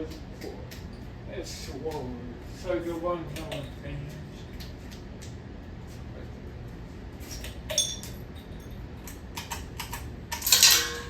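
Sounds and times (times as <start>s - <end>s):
steady low hum: 0.0s - 11.0s
sharp metallic clink: 7.7s - 8.8s, 10.4s - 11.0s.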